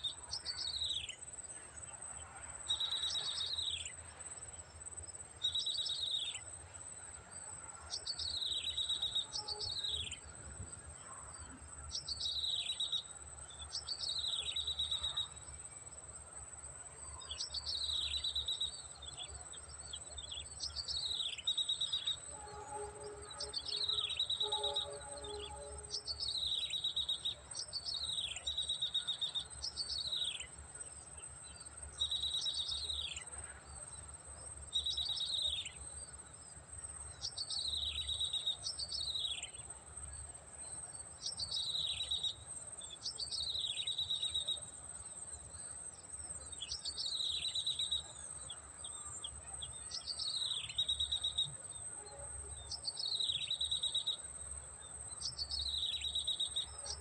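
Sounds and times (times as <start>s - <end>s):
high insect drone: 0.1s - 57.0s
bird calls with rattling trill: 20.1s - 30.5s.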